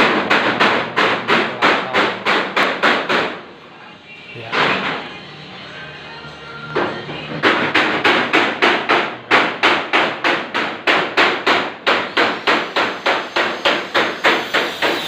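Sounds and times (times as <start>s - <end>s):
hammer striking steel panel: 0.0s - 3.4s, 6.8s - 15.0s.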